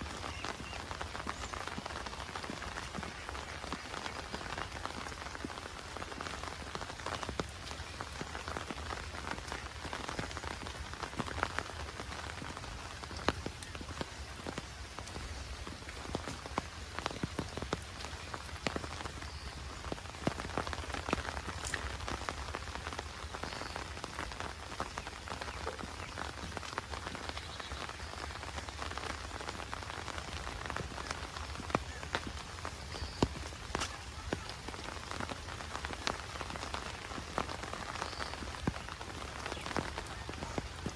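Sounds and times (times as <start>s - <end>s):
heavy rain hiss: 0.0s - 40.9s
raindrops ticking: 0.0s - 40.9s.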